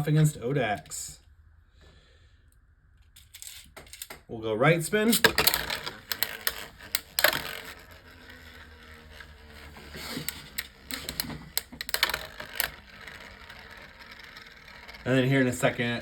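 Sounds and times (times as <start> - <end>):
plastic spinning tops clicking: 5.0 - 16.0.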